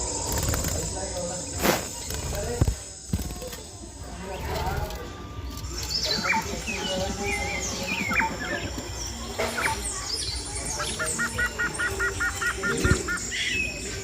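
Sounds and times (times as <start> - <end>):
parrots chirping and squawking: 5.9 - 14.0.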